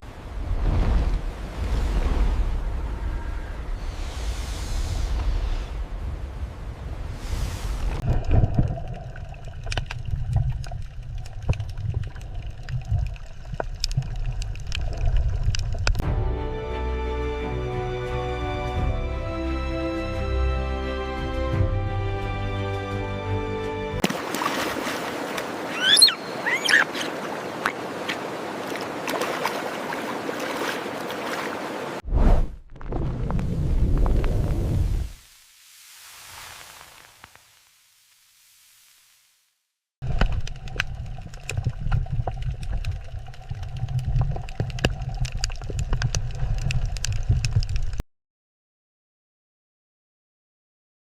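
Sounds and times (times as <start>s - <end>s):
low rumble of water: 0.0s - 16.1s, 24.0s - 37.4s, 40.0s - 48.0s
sharp underwater clicks and pops: 8.0s - 16.0s, 40.0s - 48.0s
water washing: 24.0s - 32.0s
short high bending calls: 25.7s - 27.1s.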